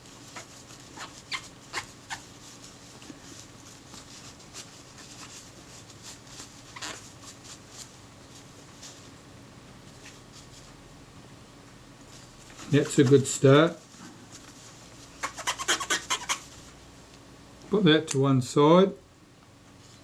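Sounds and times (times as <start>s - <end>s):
glass wiping squeaks and clicks: 0.3s - 2.2s, 6.7s - 7.0s, 15.2s - 16.5s.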